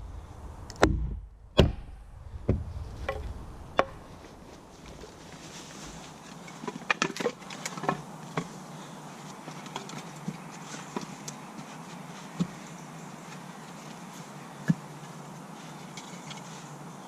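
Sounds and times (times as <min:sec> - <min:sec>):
firewood sticks knocking and snapping: 0:05.9 - 0:08.6.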